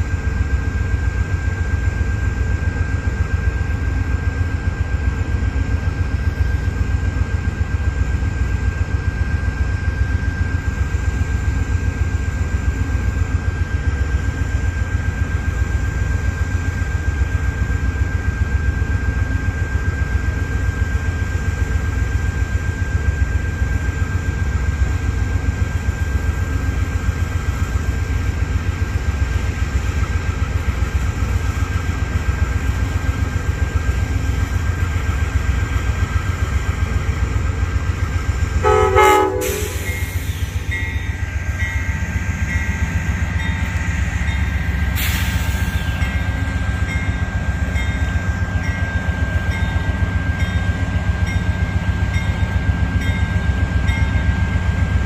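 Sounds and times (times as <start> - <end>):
train low rumble: 0.0 - 55.0
train horn blast: 38.6 - 40.1.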